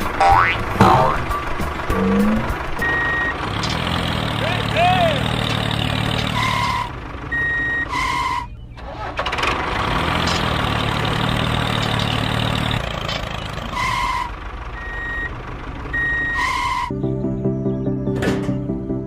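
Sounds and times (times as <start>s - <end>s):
engine humming: 0.0s - 19.0s
music: 0.8s - 2.9s, 16.9s - 19.0s
reversing alarm beeps: 1.9s - 3.3s, 7.3s - 8.4s, 14.8s - 16.9s.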